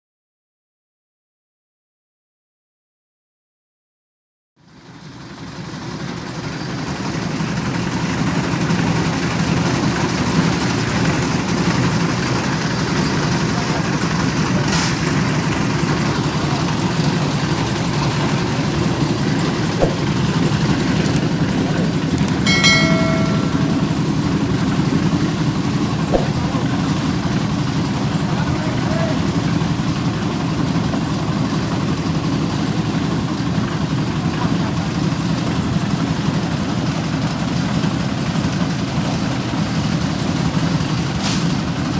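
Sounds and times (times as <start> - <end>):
diesel engine chugging: 4.7 - 23.2, 23.9 - 41.1
brief metallic ring: 19.8 - 20.2, 22.5 - 24.3, 26.1 - 26.4.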